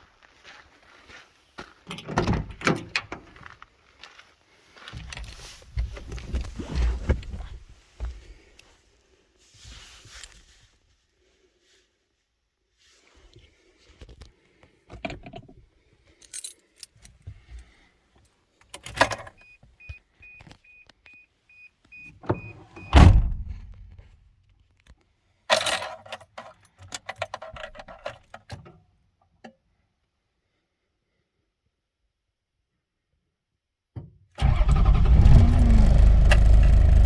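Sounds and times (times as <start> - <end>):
car door shutting thud: 22.3 - 23.8.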